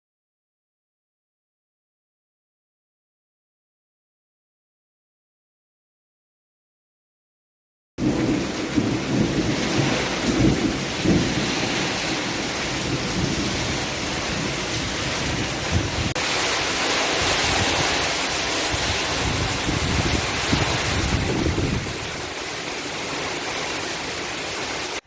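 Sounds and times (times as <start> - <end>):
heavy rain pouring: 8.0 - 25.0
thunder rumbling: 8.0 - 25.0.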